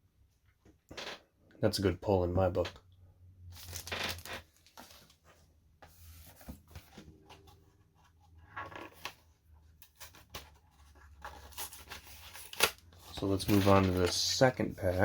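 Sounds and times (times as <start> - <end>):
cards and packaging rustling: 3.5 - 15.0.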